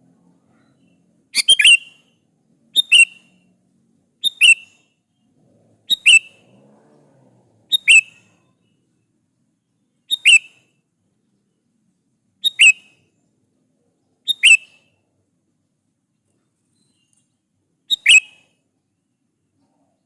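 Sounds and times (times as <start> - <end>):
bulbul calling: 1.4 - 3.4, 4.2 - 5.2, 5.9 - 6.5, 7.7 - 8.6, 10.0 - 10.7, 12.4 - 13.0, 14.2 - 14.9, 17.9 - 18.5.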